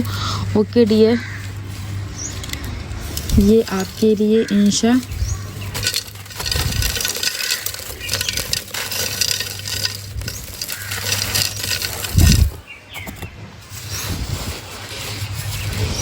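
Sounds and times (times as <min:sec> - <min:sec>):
gritty crunching crackles: 0:00.0 - 0:16.0.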